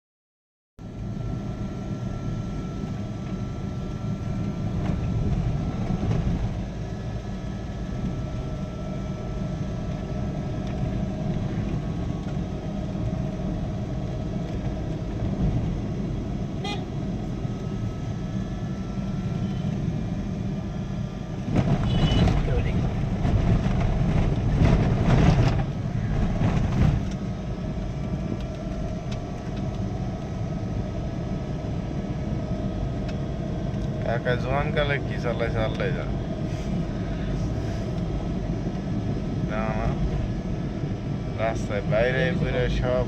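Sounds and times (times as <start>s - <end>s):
truck engine rumble and road noise: 0.8s - 43.0s
faint car horns: 16.6s - 17.0s, 21.8s - 22.6s.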